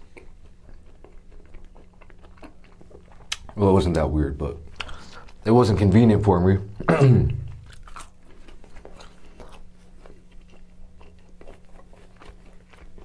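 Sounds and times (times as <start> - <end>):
person chewing pizza: 0.0 - 5.5, 6.8 - 13.0.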